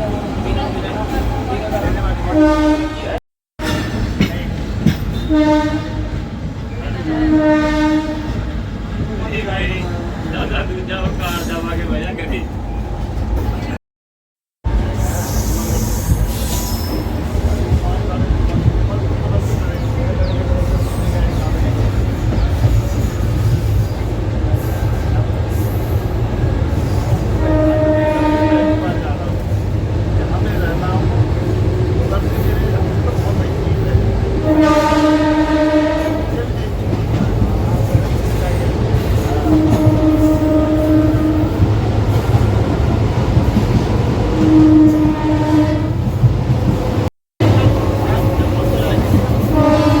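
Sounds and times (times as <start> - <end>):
train rumbling: 0.0 - 13.8, 14.6 - 50.0
train horn: 2.3 - 3.2, 5.2 - 6.2, 6.9 - 8.5, 27.1 - 29.3, 34.4 - 36.4, 39.4 - 41.7, 44.4 - 46.2, 49.0 - 50.0.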